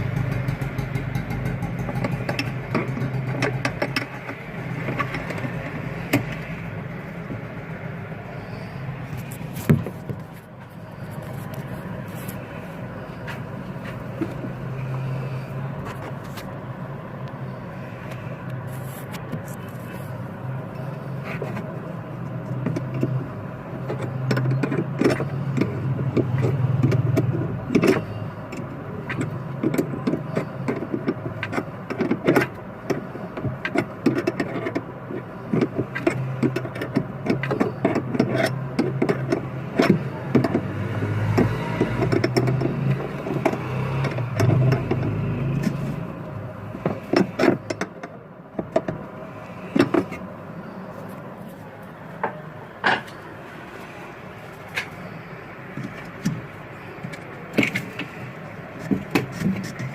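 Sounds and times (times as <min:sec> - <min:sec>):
metal and tool clicks and knocks: 0:00.0 - 0:06.6, 0:21.2 - 0:23.2, 0:23.8 - 0:45.9, 0:46.7 - 0:49.1, 0:49.7 - 0:50.3.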